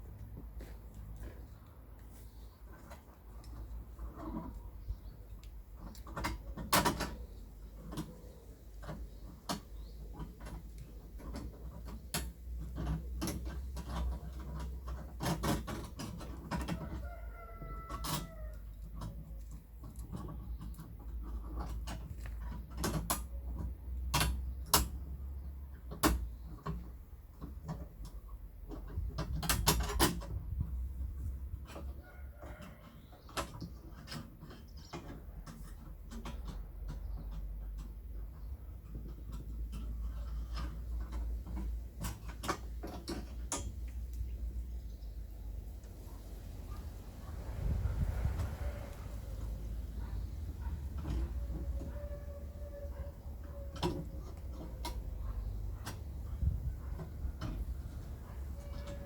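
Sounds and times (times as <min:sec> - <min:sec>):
clicks and knocks on a fence: 0:05.4 - 0:25.0, 0:25.8 - 0:30.7, 0:31.6 - 0:44.7.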